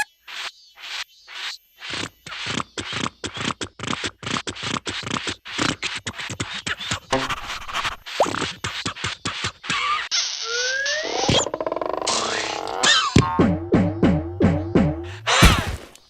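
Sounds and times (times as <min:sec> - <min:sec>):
cartoon scratching strokes: 0:01.8 - 0:10.6.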